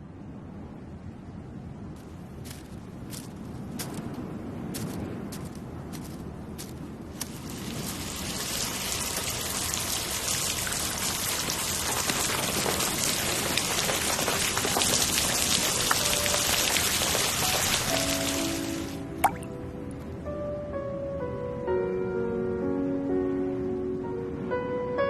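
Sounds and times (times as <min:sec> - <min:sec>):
rain patter: 0:02.0 - 0:19.6.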